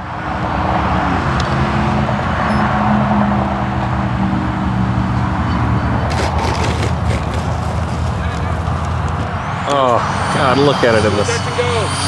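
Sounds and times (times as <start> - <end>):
rc jet fan rushing: 6.1 - 11.3.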